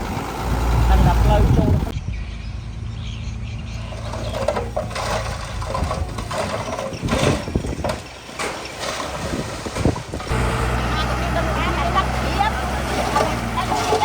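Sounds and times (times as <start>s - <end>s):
diesel engine running: 0.0s - 1.9s, 10.2s - 14.0s
clatter: 3.8s - 9.2s.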